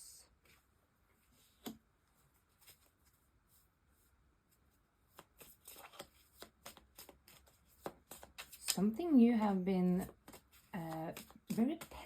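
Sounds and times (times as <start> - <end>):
cards rustling and flicking: 2.5 - 3.2, 5.1 - 9.0, 9.9 - 12.0
tap on cards: 11.1 - 12.0.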